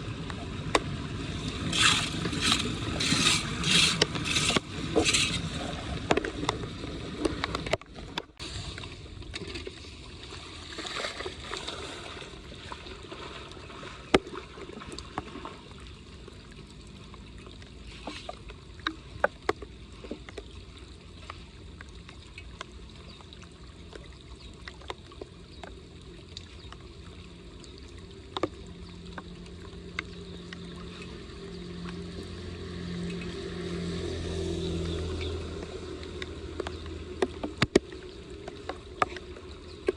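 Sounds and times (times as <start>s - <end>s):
water running into storm drain: 0.6s - 7.6s, 8.4s - 39.9s
low hum: 25.9s - 39.9s.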